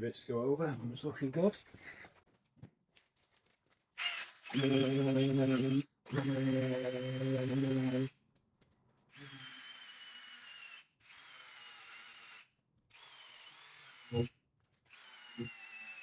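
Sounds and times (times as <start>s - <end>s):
power drill high whine: 4.0s - 8.1s, 9.2s - 14.3s, 14.9s - 16.0s.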